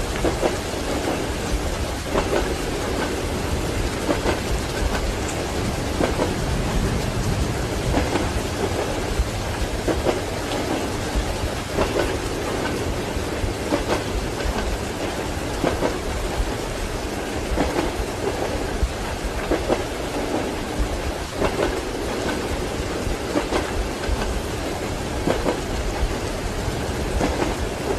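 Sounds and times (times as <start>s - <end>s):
rain falling: 0.0s - 27.9s
train rumbling: 0.0s - 27.9s
train wheels clacking: 0.0s - 27.9s.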